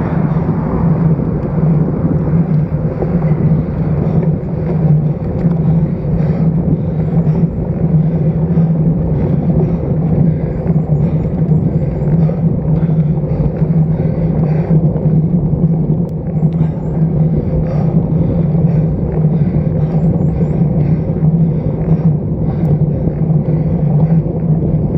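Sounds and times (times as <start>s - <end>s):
wind rushing: 0.0s - 13.2s
low hum: 0.0s - 24.9s
tyre noise on road: 0.0s - 24.9s.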